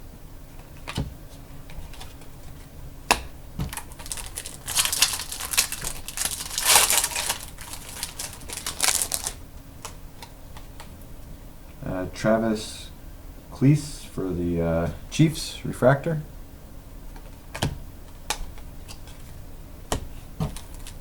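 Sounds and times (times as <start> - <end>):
cards clicking: 3.1 - 10.0
packaging crinkling: 3.6 - 9.4.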